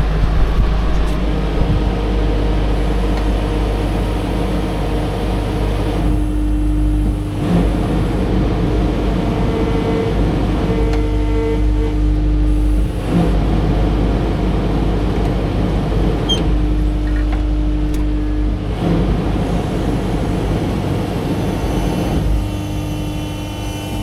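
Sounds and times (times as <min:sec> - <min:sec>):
road rumble: 0:00.0 - 0:08.2
vehicle engine running: 0:00.0 - 0:08.4.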